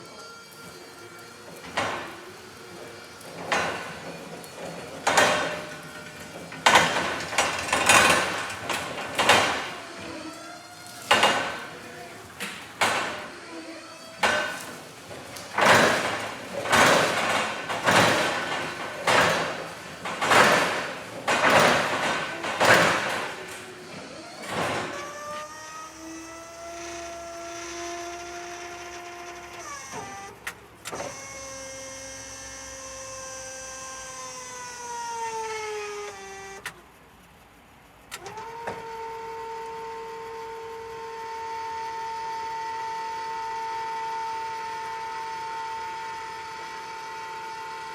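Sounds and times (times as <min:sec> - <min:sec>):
loud knocks and clatters: 0:01.4 - 0:13.5, 0:14.1 - 0:25.4.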